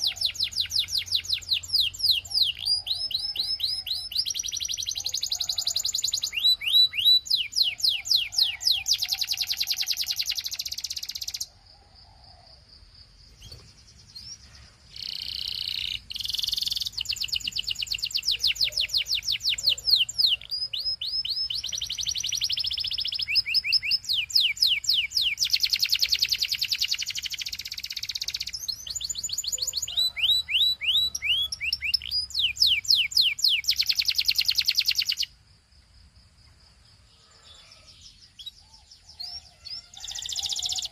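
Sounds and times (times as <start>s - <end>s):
canary singing rapid trills: 0.0s - 11.5s, 13.3s - 35.4s, 37.2s - 40.9s.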